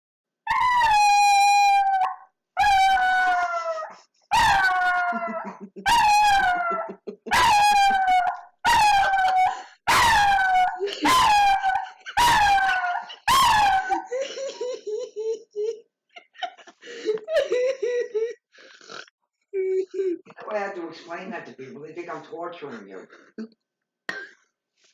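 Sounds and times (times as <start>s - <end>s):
dog howling: 0.5s - 14.1s.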